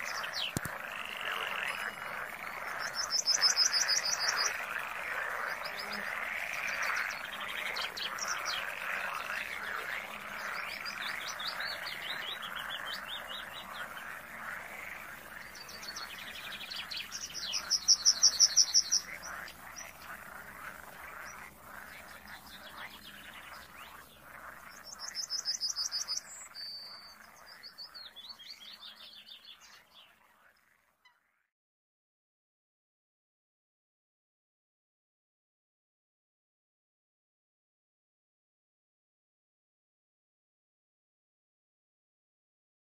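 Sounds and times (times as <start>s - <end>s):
chattering animal calls: 0.0s - 26.2s.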